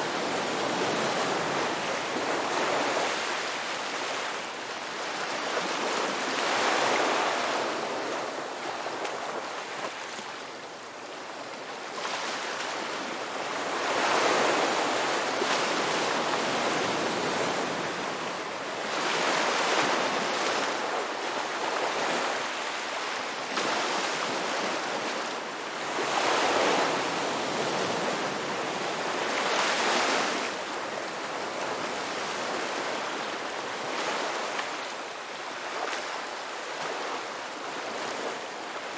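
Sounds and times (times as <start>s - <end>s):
ocean waves breaking on rocks: 13.5s - 30.5s.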